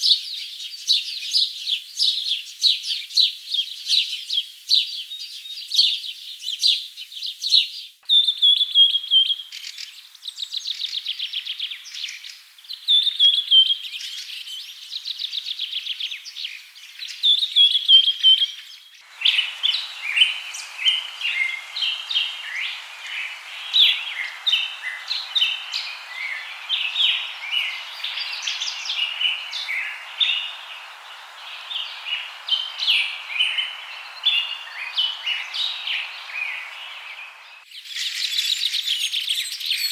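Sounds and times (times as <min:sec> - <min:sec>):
birds singing trilled phrases: 0:00.0 - 0:39.9
chorus of bird chirps: 0:00.0 - 0:39.9
steady hiss: 0:19.0 - 0:37.7.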